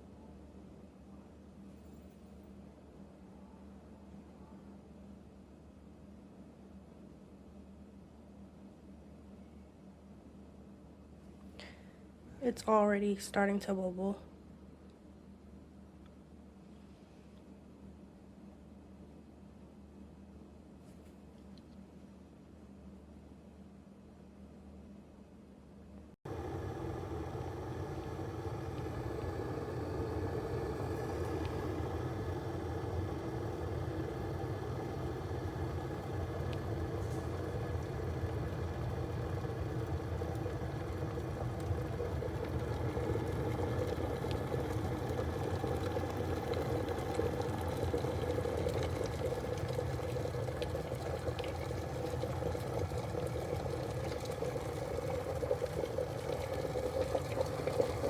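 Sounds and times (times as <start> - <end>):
electric kettle water bubbling: 26.2 - 58.0.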